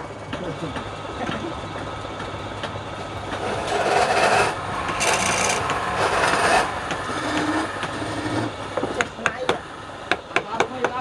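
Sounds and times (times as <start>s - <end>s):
lathe running: 0.0s - 10.1s
tool rasping against wood: 3.3s - 9.1s.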